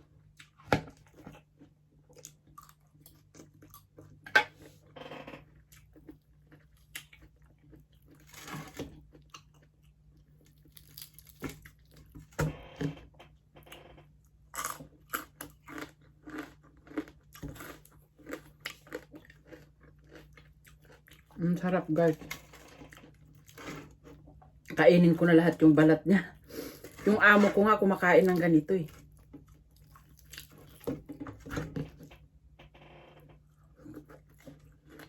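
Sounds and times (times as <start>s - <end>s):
chewing and crunching fried skin: 0.0s - 12.7s, 13.7s - 25.7s, 26.3s - 32.3s, 33.4s - 35.0s.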